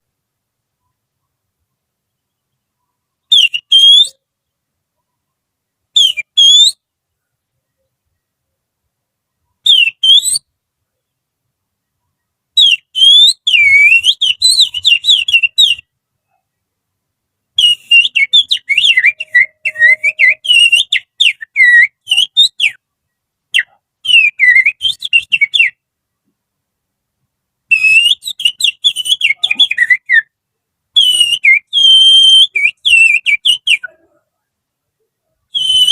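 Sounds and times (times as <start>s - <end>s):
finger whistling birdsong: 3.3s - 4.2s, 6.0s - 6.8s, 9.7s - 10.5s, 12.6s - 15.9s, 17.6s - 22.8s, 23.6s - 25.8s, 27.7s - 30.3s, 31.0s - 34.1s, 35.5s - 35.9s.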